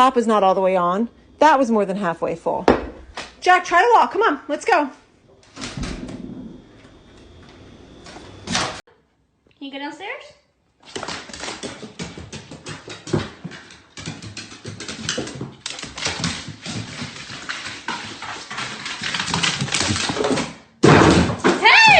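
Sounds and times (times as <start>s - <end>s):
dog claws clicking and scuffling: 10.8s - 20.6s.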